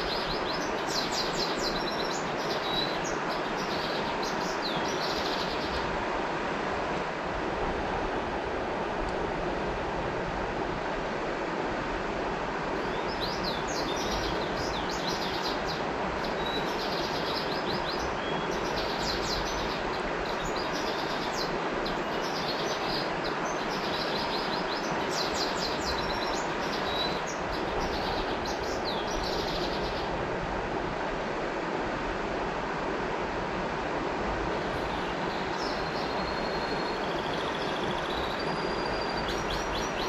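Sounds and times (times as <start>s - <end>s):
river water rushing: 0.0s - 40.0s
songbird chirping: 12.8s - 30.1s, 34.6s - 40.0s.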